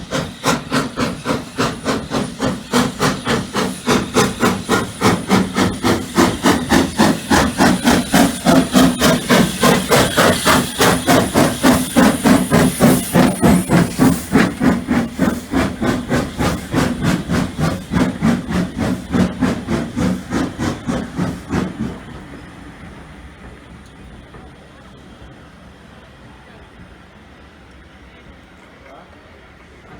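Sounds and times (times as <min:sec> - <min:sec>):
steam hiss: 0:00.0 - 0:26.0
steam locomotive exhaust beats: 0:00.0 - 0:29.9.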